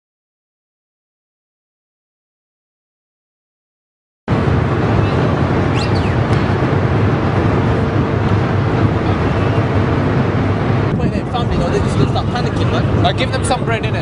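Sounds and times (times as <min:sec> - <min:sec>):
ship engines rumbling: 0:04.3 - 0:14.0.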